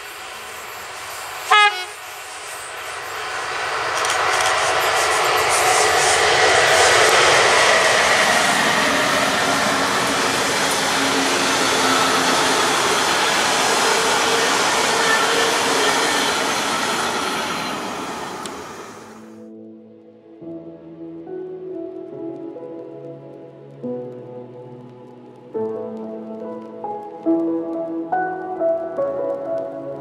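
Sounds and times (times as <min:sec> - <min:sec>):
wheels rushing on rail: 0:00.0 - 0:19.4.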